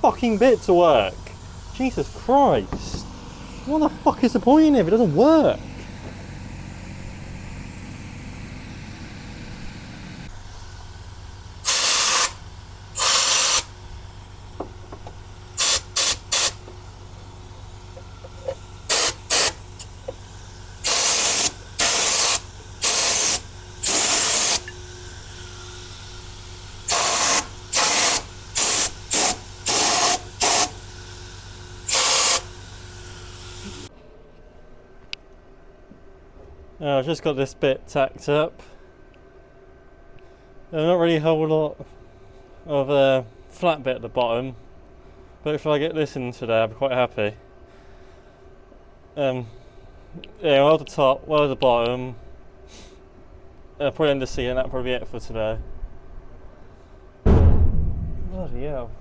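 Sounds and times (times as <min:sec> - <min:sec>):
steady low hum: 0:00.0 - 0:59.0
welder crackling hiss: 0:11.5 - 0:33.9.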